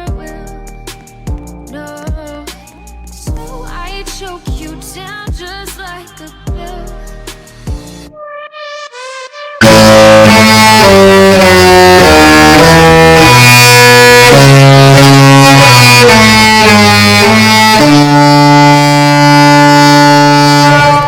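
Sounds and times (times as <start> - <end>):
musical ship's horn melody: 9.6 - 21.0.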